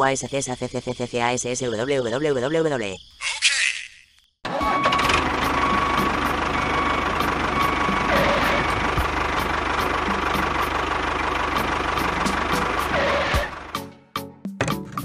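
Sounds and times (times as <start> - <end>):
tractor engine idling: 4.5 - 13.9.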